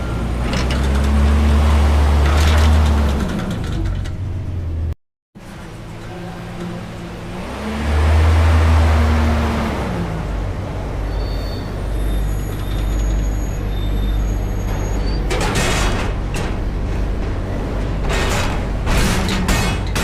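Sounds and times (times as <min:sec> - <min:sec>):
diesel truck engine revving: 0:00.0 - 0:05.0, 0:05.6 - 0:19.4
thin high squeals: 0:11.1 - 0:15.3.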